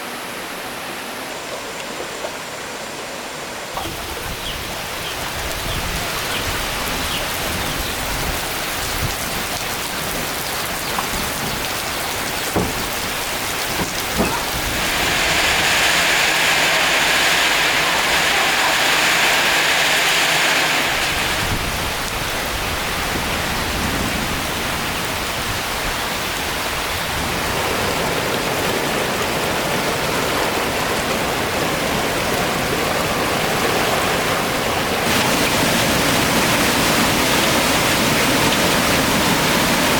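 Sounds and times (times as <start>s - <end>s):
hiss of running water: 3.6s - 24.1s, 35.0s - 39.9s.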